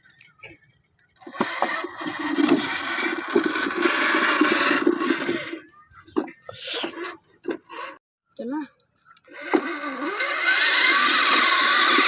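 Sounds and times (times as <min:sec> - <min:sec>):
tractor engine cranking: 0:01.2 - 0:08.0, 0:09.2 - 0:12.0.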